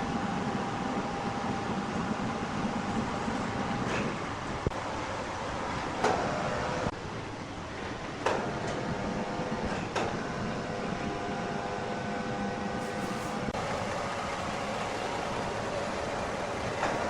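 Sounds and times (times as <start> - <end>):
machine whine: 12.6 - 17.0
wood-processing machinery running: 12.7 - 17.0.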